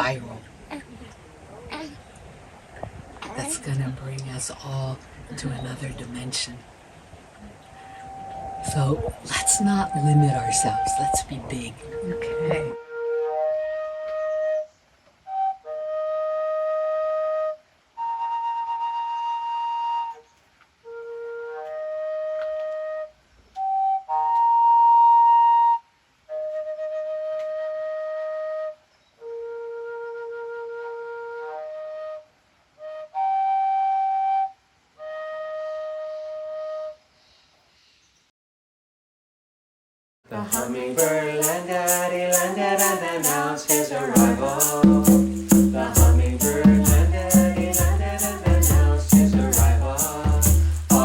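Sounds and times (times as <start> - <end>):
flute playing slow melody: 7.7 - 37.2.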